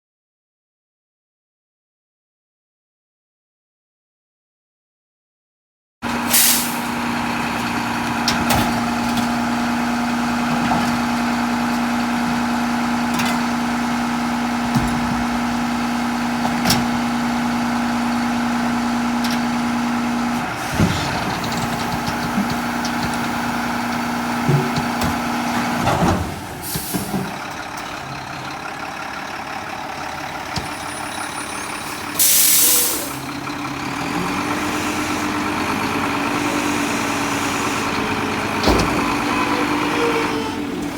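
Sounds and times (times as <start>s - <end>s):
garbage truck engine whining: 6.0s - 40.9s
air brake hiss: 6.3s - 6.9s, 26.6s - 27.3s, 31.1s - 33.3s
knocks and clanks: 20.6s - 27.9s, 38.6s - 39.2s.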